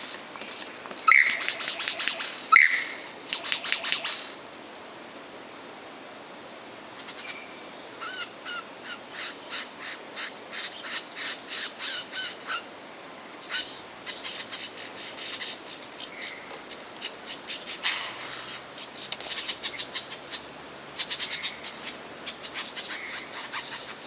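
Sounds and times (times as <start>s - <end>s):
lyrebird rasping calls: 1.0s - 4.3s, 13.4s - 24.0s.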